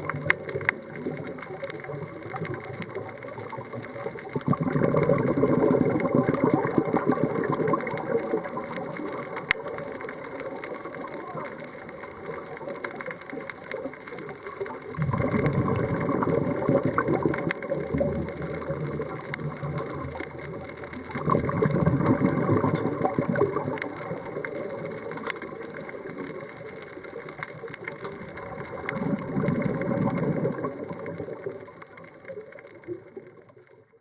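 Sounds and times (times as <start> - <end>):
diver exhaling bubbles underwater: 4.3 - 9.4, 14.8 - 25.2, 28.4 - 31.7.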